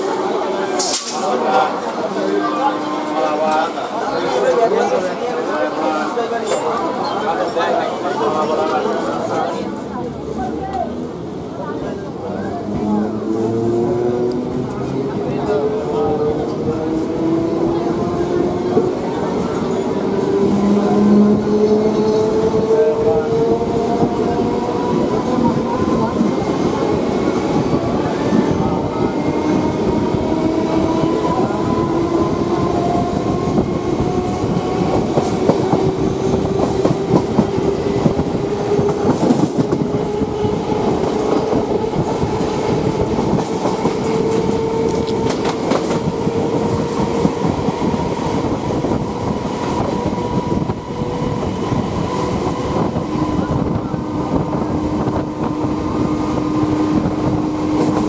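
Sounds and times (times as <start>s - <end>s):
train wheels rumbling on track: 0.0s - 58.0s
rail joint clicks: 40.9s - 47.8s.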